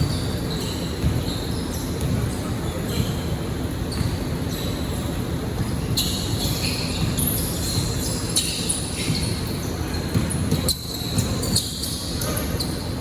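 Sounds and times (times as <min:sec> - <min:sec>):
basketball bouncing: 0:00.0 - 0:01.4, 0:03.9 - 0:04.3, 0:05.6 - 0:12.4
indoor hall noise: 0:00.0 - 0:13.0
sneakers squeaking: 0:00.0 - 0:13.0.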